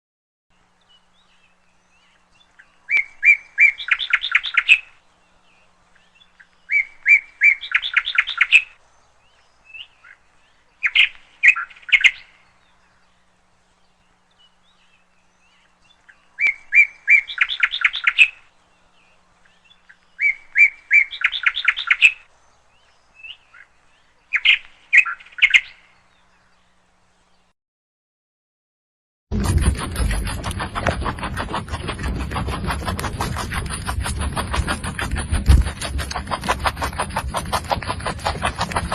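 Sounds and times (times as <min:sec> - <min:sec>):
bird singing: 0:00.5 - 0:27.5.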